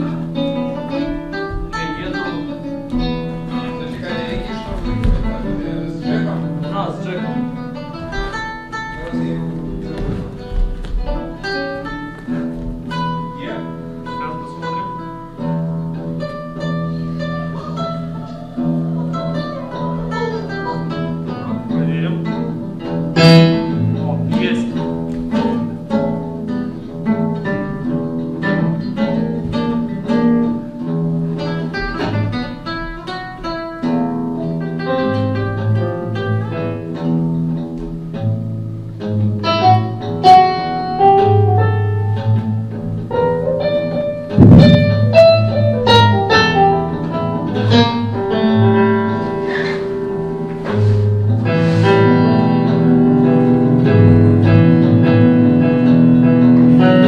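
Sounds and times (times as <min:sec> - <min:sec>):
guitar playing: 0:00.0 - 0:57.0
low held bass note: 0:44.3 - 0:46.3.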